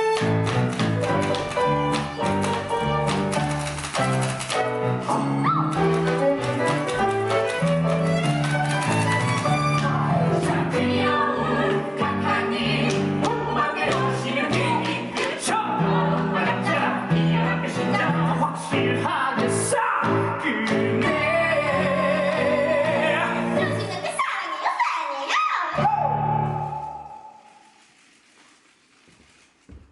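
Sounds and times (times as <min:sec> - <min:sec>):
instrumental accompaniment: 0:00.0 - 0:23.9
person singing: 0:09.7 - 0:23.8.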